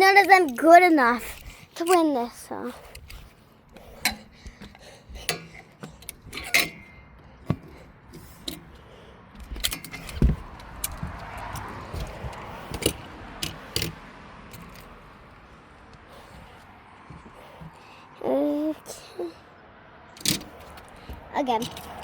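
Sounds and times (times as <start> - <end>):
heavy thump: 9.4 - 11.2
plastic toy trucks clattering: 20.2 - 22.0.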